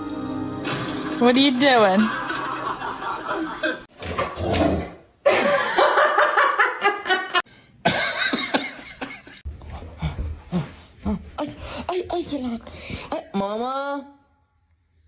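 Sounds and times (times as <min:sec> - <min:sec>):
people laughing: 0:01.8 - 0:03.9, 0:05.3 - 0:09.4.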